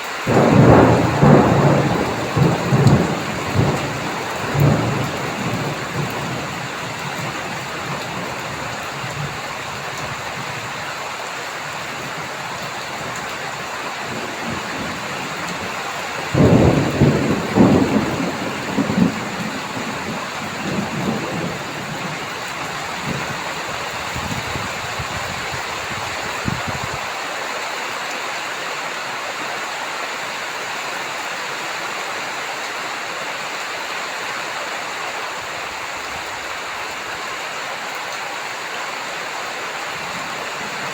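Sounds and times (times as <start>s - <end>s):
heavy rain: 0.0s - 40.9s
thunder rumbling: 0.3s - 10.5s, 13.0s - 27.0s.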